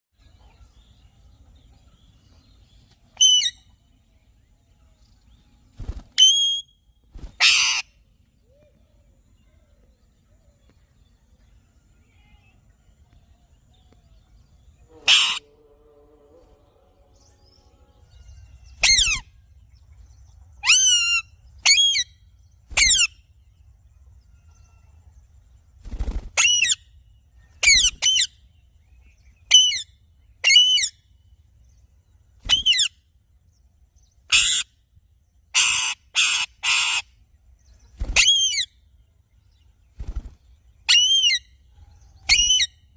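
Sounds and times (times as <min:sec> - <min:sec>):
parrot giving loud calls: 0:07.4 - 0:07.8, 0:15.0 - 0:15.5, 0:35.5 - 0:37.0.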